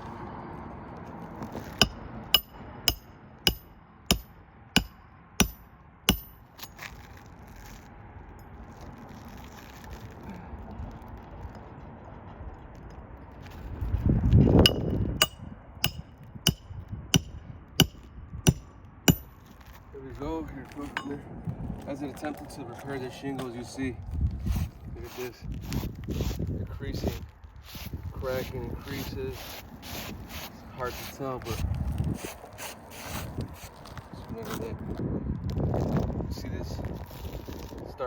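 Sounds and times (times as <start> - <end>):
hammer driving nails: 1.8 - 6.4, 14.7 - 16.6, 17.2 - 19.4.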